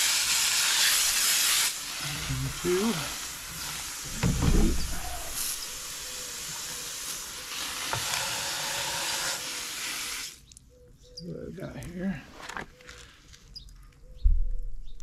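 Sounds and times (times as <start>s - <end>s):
garden hose spraying water: 0.0s - 10.5s
low bump: 4.0s - 5.8s, 14.2s - 15.0s.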